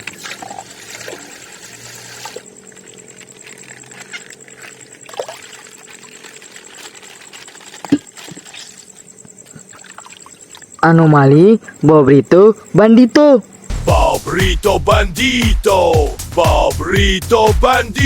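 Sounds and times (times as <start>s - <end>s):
water trickling and pouring: 0.0s - 9.1s.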